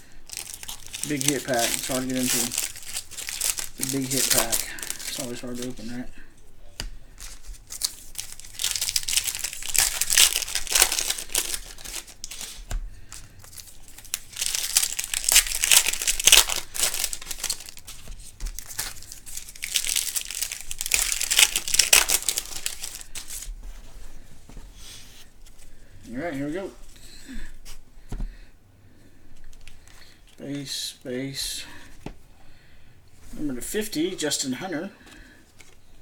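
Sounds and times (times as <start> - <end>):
card pack wrapper crinkling and tearing: 0.3 - 6.0, 7.2 - 23.5.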